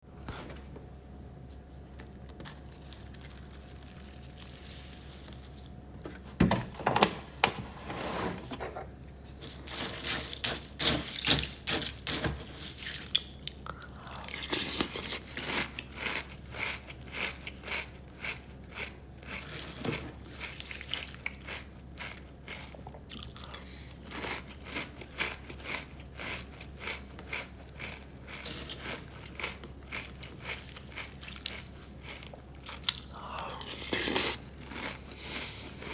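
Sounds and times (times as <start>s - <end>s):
crunchy bites and chewing: 10.0s - 35.9s.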